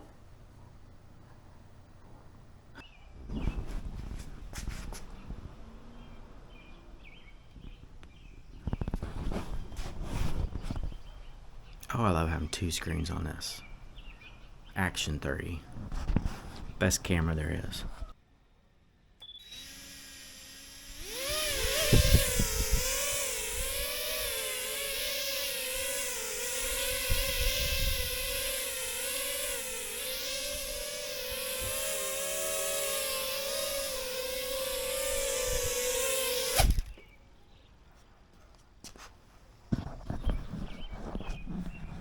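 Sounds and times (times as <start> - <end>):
quadcopter motors whining: 19.2 - 37.1.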